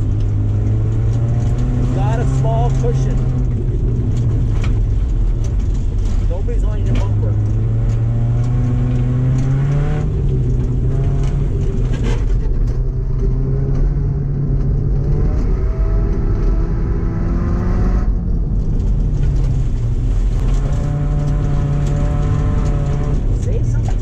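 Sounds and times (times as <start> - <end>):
car engine revving hard: 0.0 - 3.7, 6.8 - 12.4, 20.3 - 23.4.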